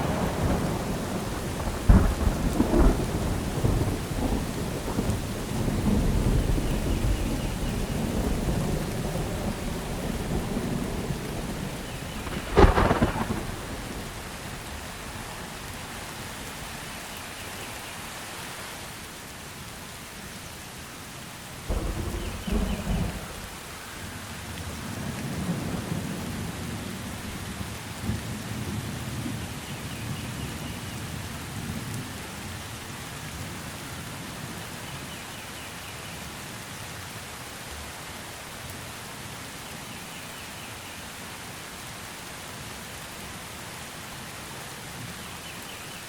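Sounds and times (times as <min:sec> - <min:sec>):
thunder clap: 0:00.0 - 0:16.0, 0:21.7 - 0:24.1
rolling thunder rumble: 0:00.0 - 0:16.8, 0:21.6 - 0:29.4
steady rain: 0:00.0 - 0:46.0.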